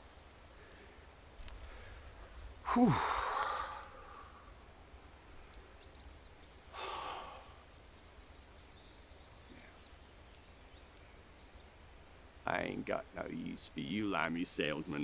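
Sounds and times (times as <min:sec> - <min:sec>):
faint birds chirping: 0:00.0 - 0:15.0
man sighing: 0:02.6 - 0:04.4, 0:06.8 - 0:07.6.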